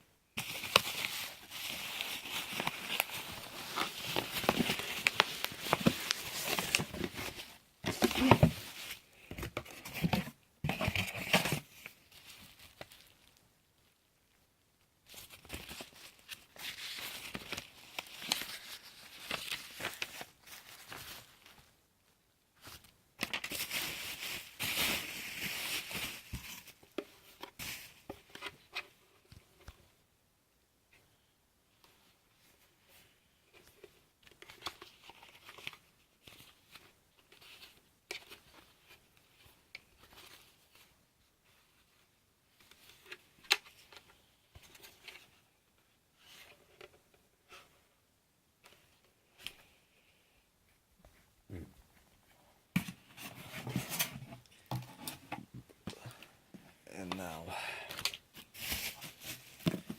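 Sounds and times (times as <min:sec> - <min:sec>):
packaging crinkling and rustling: 0:00.4 - 0:13.4, 0:15.1 - 0:21.7, 0:22.6 - 0:28.5, 0:57.0 - 0:59.9.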